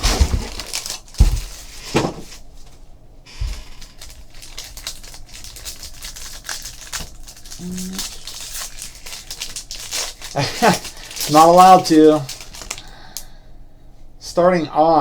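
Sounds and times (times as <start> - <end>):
box and cards clicking and rustling: 0.0 - 2.4, 3.4 - 12.9.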